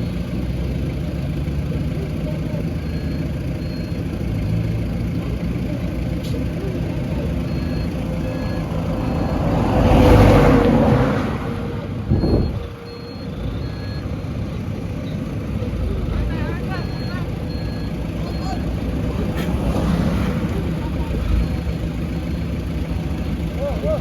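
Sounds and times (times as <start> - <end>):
heavy diesel machinery running: 0.0 - 24.0
truck reversing alarm beeping: 0.0 - 24.0.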